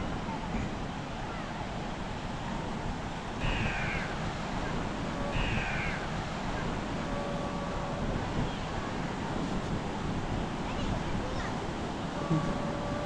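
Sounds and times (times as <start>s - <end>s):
wind: 0.0s - 13.0s
bird calls: 3.4s - 6.1s.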